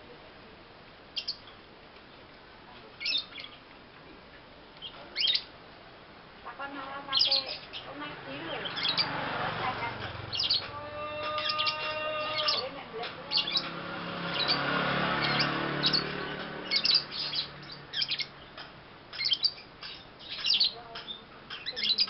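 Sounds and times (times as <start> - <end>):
low noise: 0.0 - 22.0
lovebird chirping: 1.1 - 1.7, 3.0 - 3.7, 4.8 - 5.5, 6.8 - 22.0.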